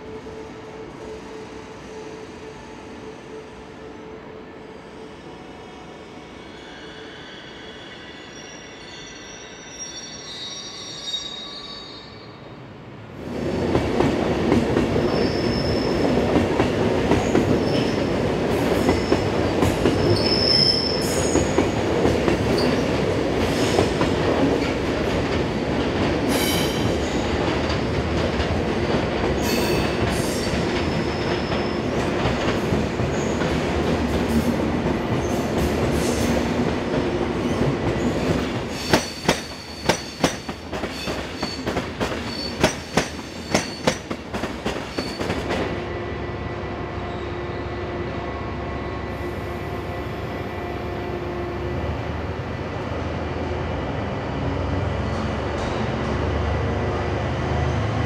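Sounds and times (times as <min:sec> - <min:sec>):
high-pitched wheel squeals: 0:06.5 - 0:12.4
train wheels rumbling on rails: 0:13.2 - 0:46.4, 0:47.1 - 0:58.0.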